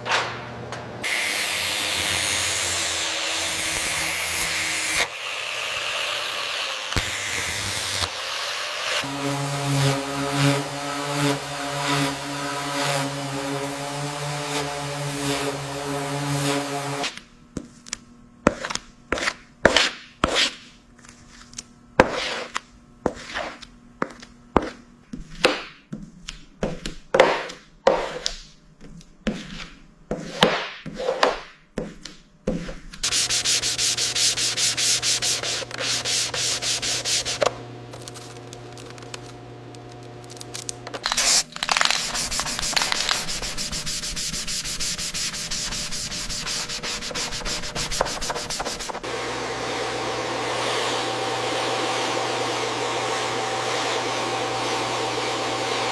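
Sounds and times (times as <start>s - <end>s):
machine hum: 0.0s - 17.1s, 33.0s - 55.9s
continuous machine sanding: 1.0s - 17.1s, 33.0s - 55.9s
sanding scraping strokes: 1.0s - 17.1s, 33.0s - 39.1s, 41.0s - 49.1s.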